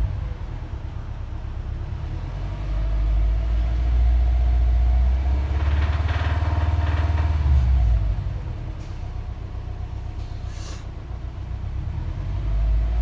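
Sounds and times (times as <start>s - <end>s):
car engine deep rumble: 0.0s - 6.2s
engine knocking noise: 3.0s - 9.9s.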